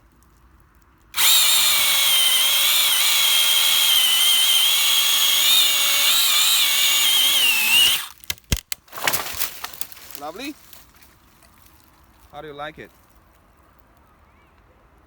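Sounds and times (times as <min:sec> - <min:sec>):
chainsaw cutting wood: 0:01.2 - 0:09.4.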